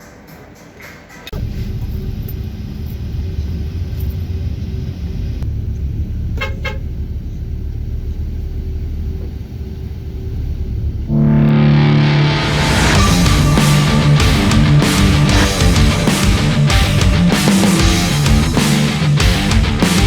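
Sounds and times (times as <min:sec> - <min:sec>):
car road and engine rumble: 0:01.3 - 0:18.9
vehicle horn toots: 0:06.4 - 0:06.9.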